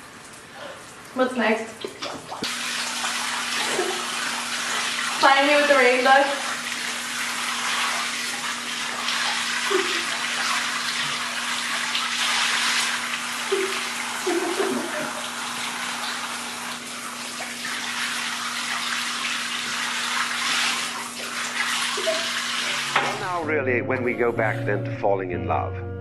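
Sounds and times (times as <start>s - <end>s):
water spraying in a rushing hiss: 2.4s - 23.0s.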